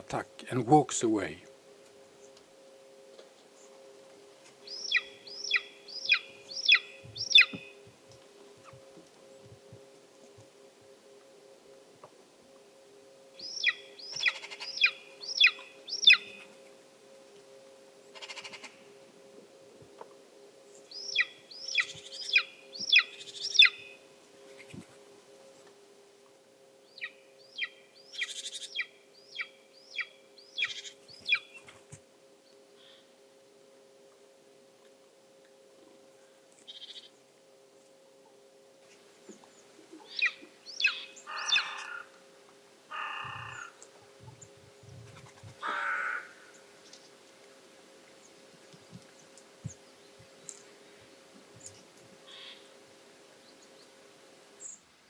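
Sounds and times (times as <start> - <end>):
eagle yelping: 40.1 - 42.1, 45.6 - 46.4.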